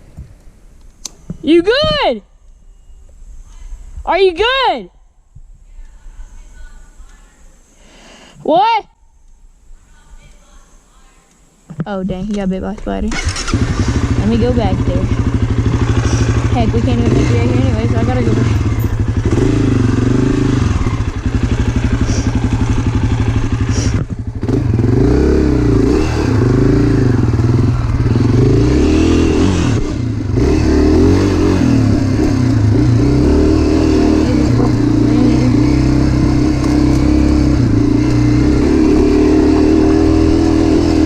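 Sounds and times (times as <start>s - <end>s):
dirt bike engine revving: 13.1s - 41.0s.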